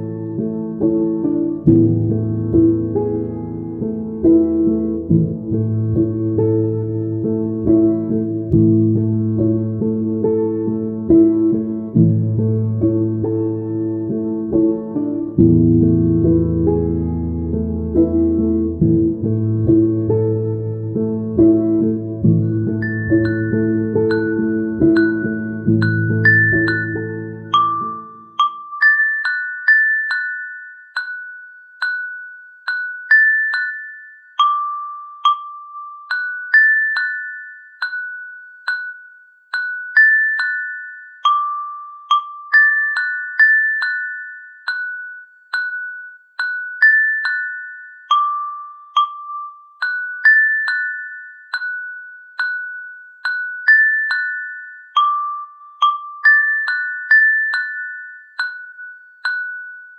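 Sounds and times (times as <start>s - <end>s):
bell-like chiming melody: 20.1s - 59.9s.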